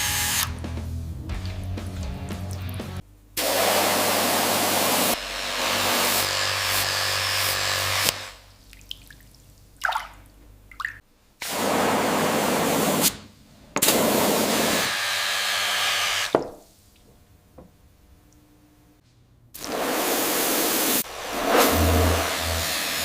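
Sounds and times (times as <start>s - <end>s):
loud hissing air jet: 13.8s - 15.1s, 19.6s - 23.0s.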